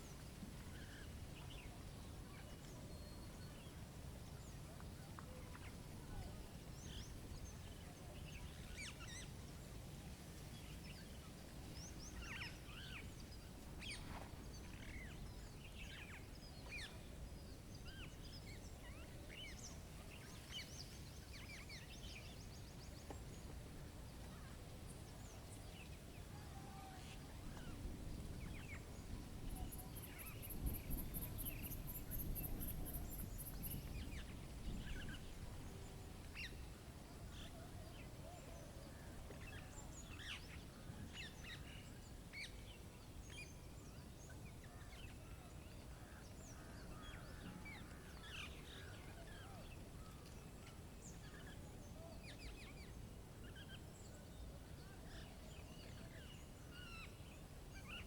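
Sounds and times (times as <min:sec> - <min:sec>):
small birds chirping: 0:26.9 - 0:58.0
low wind rumble: 0:27.2 - 0:37.9.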